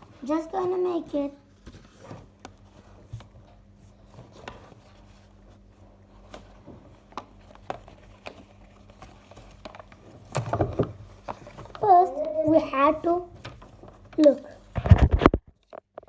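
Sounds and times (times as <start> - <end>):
low electrical hum: 0.0 - 16.0
paper crackling: 1.6 - 16.0.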